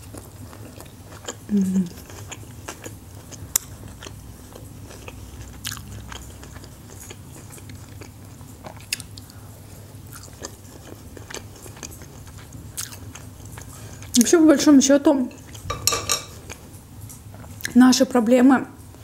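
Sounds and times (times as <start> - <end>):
chewing and biting: 0.0 - 9.4, 10.1 - 14.2
steady low hum: 0.0 - 19.0.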